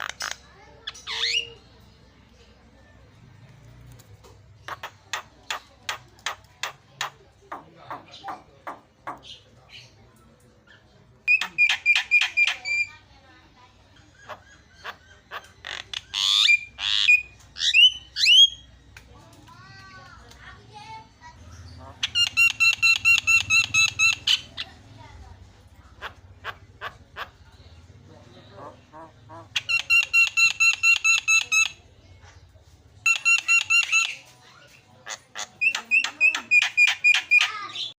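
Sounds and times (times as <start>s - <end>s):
bird singing rasping and whistles: 0.0s - 1.7s, 11.3s - 12.9s, 14.1s - 18.8s, 21.6s - 24.8s, 29.4s - 31.8s, 33.0s - 37.9s.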